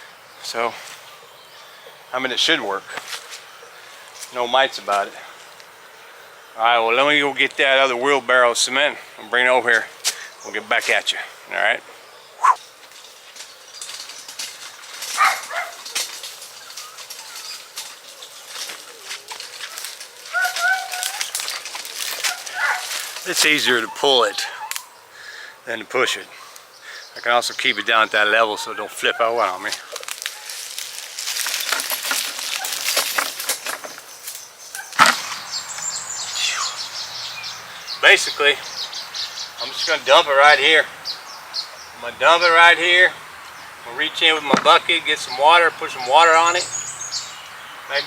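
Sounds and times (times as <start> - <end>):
birds chirping: 0.0 - 48.0
footsteps: 2.9 - 5.6, 12.4 - 23.8, 29.5 - 34.4, 44.2 - 45.3
animal calls: 12.3 - 12.6, 15.1 - 25.1
wheelbarrow rattling over rough ground: 12.8 - 23.8, 29.4 - 36.0, 43.9 - 47.4.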